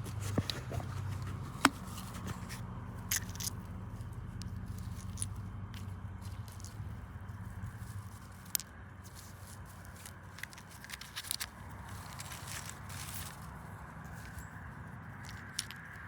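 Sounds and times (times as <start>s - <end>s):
rustling: 0.0s - 16.0s.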